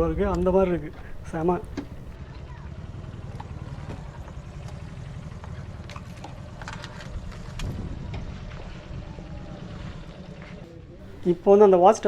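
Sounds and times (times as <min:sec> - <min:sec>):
light clicks: 0:00.0 - 0:02.2
motorcycle engine rumbling: 0:00.0 - 0:02.2, 0:11.0 - 0:12.0
wind on microphone: 0:00.0 - 0:02.2, 0:07.2 - 0:10.0.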